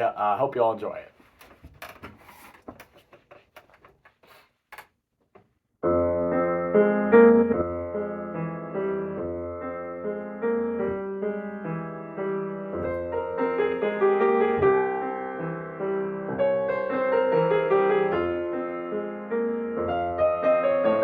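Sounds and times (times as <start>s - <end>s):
slow ambient piano music: 5.8s - 21.0s.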